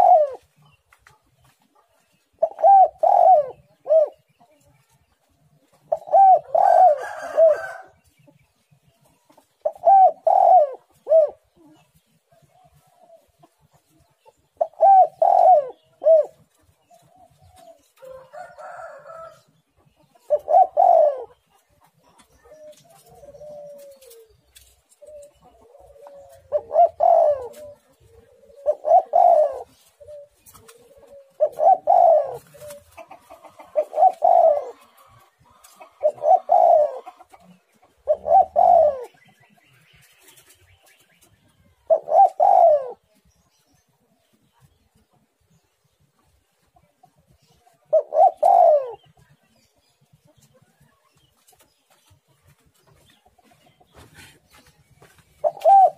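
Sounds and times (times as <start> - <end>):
dove cooing: 0.0 - 0.7, 2.4 - 4.3, 5.7 - 8.0, 9.2 - 13.6, 14.3 - 19.5, 20.1 - 39.2, 41.5 - 43.2, 47.5 - 49.5, 55.4 - 55.9.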